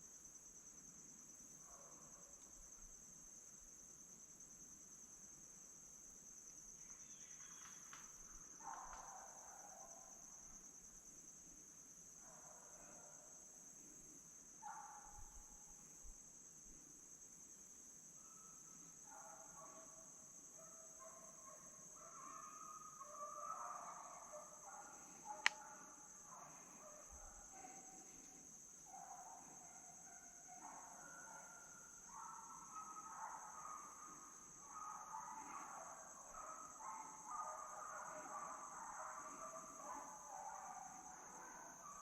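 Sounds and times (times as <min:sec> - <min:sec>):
insects droning: 0:00.0 - 0:42.0
distant hounds baying: 0:08.5 - 0:10.6, 0:18.2 - 0:42.0.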